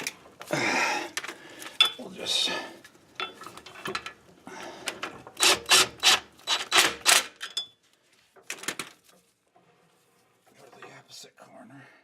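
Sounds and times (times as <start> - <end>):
power tool harsh bursts: 5.4 - 7.0.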